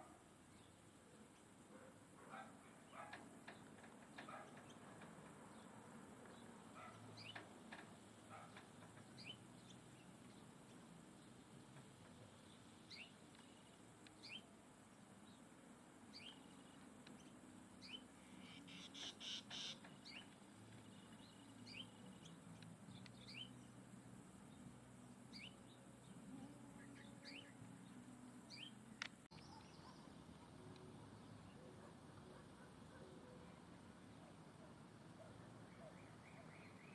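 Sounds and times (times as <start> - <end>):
faint bird chirps: 16.1 - 23.8, 25.3 - 36.9.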